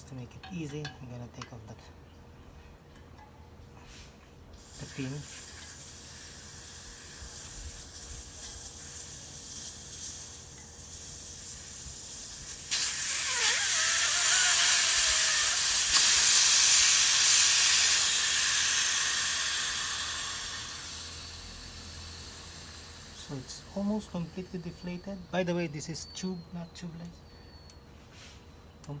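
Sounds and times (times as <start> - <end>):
air hissing out of tire valve: 3.9 - 25.4
faint whistle: 19.9 - 28.7.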